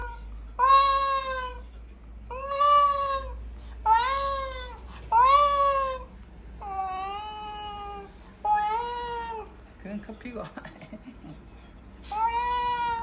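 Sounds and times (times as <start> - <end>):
cat meowing: 0.0 - 1.6, 2.3 - 9.5, 12.1 - 13.0.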